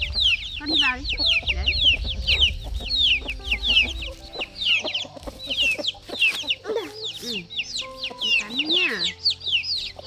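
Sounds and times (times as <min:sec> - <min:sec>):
low rumble: 0:00.0 - 0:06.1
chickens peeping: 0:00.0 - 0:10.0.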